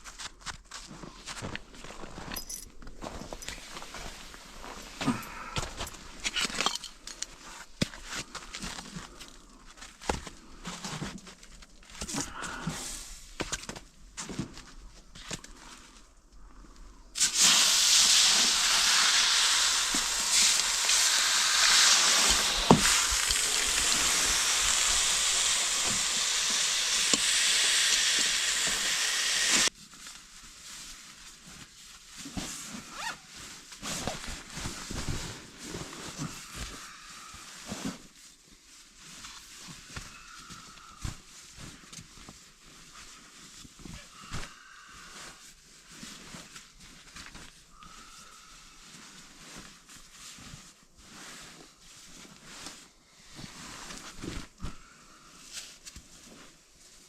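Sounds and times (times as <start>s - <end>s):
loud steady hiss: 17.2s - 29.7s.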